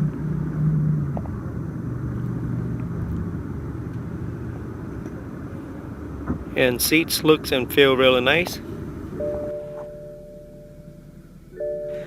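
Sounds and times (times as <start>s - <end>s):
low hum: 8.6s - 12.0s.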